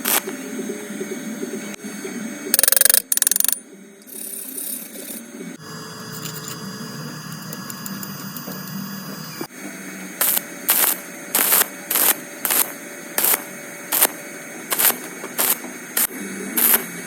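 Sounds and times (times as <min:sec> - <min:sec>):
welding arc crackling hiss: 0:00.0 - 0:00.4, 0:10.1 - 0:17.0.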